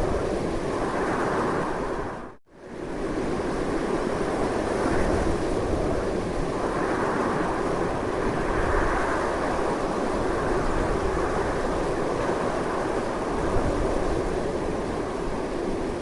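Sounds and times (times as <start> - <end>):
strong wind rushing: 0.0 - 16.0.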